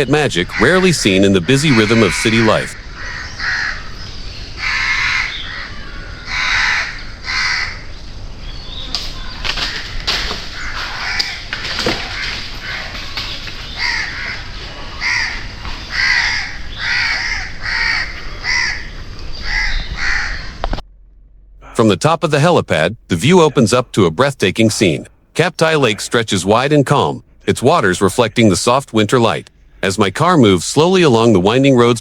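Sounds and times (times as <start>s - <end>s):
crows cawing: 0.0s - 4.0s, 4.6s - 7.8s, 9.2s - 20.8s.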